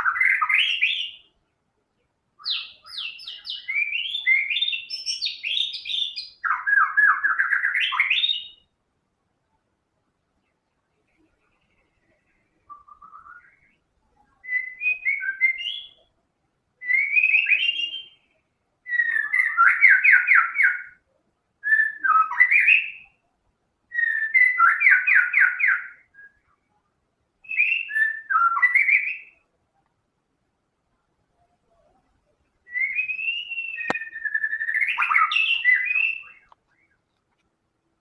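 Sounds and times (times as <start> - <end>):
songbird whistling phrases: 0.0 - 1.3, 2.4 - 8.7, 12.6 - 13.8, 14.4 - 16.1, 16.8 - 21.0, 21.6 - 23.2, 23.9 - 26.6, 27.4 - 29.5, 32.6 - 37.0.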